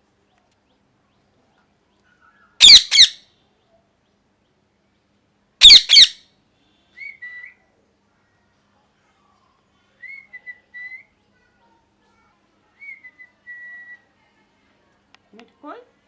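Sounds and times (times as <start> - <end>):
parrot squawking: 2.6 - 3.2, 5.6 - 6.2.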